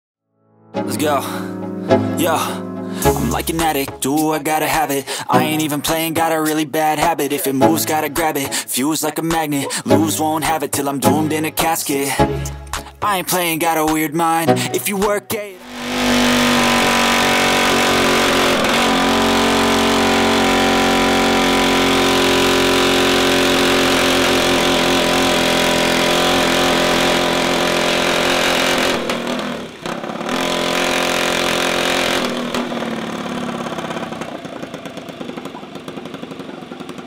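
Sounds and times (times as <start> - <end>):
mini bike engines running: 15.6 - 37.0.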